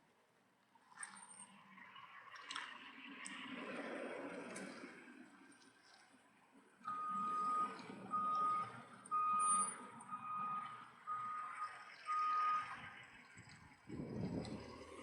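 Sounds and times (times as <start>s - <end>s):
reversing alarm beeps: 6.9s - 13.0s
low rumble: 13.3s - 15.0s.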